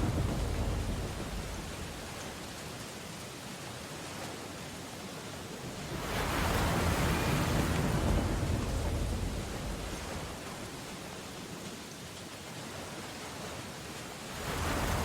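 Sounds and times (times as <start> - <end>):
rain and surf hiss: 0.0 - 15.0
ocean wave crashing: 5.8 - 10.5.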